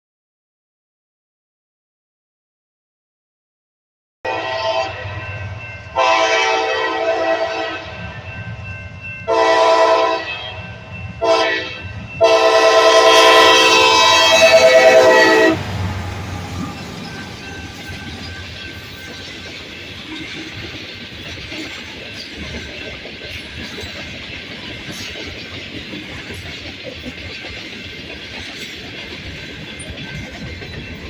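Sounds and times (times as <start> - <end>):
locomotive air horn blasts: 4.3 - 5.4, 6.0 - 8.0, 9.3 - 15.7
train rumble and wheel noise: 4.3 - 31.0.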